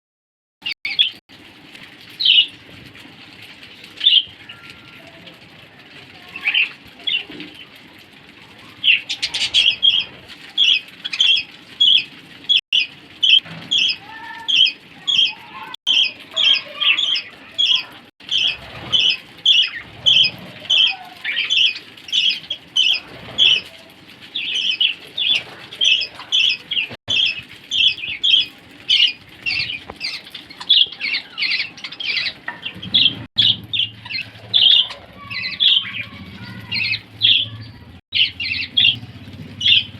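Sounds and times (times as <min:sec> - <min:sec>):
parrots chirping: 0:00.6 - 0:01.2, 0:08.7 - 0:39.9.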